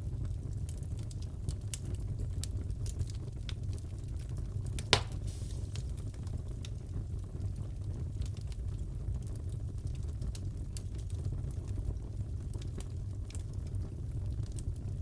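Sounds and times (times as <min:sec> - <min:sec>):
fireplace crackling: 0:00.2 - 0:08.5, 0:09.3 - 0:15.0
loud fire snap: 0:04.7 - 0:07.0.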